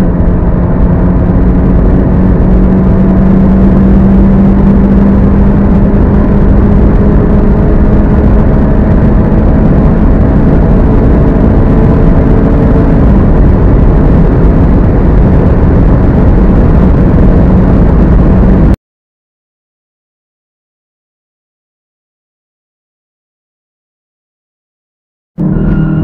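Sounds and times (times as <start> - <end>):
car engine drone accelerating: 0.0 - 18.8, 25.4 - 26.0
heavy rush of noise: 0.0 - 18.8, 25.4 - 26.0.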